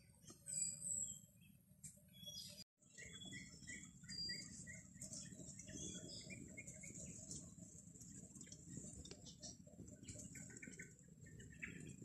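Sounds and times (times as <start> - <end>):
bird chirping: 0.0 - 7.5, 8.7 - 12.0.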